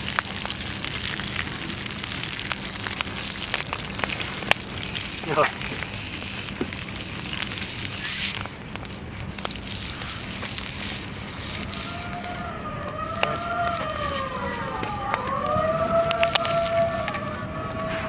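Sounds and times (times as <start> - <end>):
chicken sizzling on a grill plate: 0.0 - 12.3
campfire crackling: 0.0 - 18.0
siren wailing: 10.0 - 18.0.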